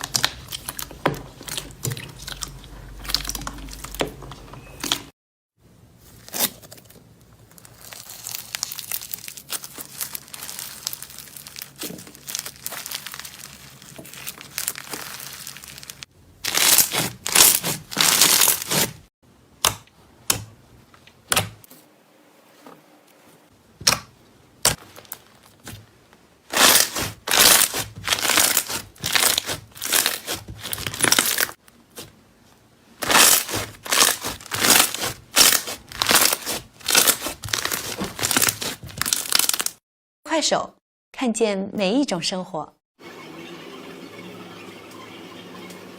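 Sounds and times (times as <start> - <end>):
slime crackling and popping: 0.0 - 2.4, 7.4 - 19.0, 26.5 - 32.1, 33.0 - 39.8.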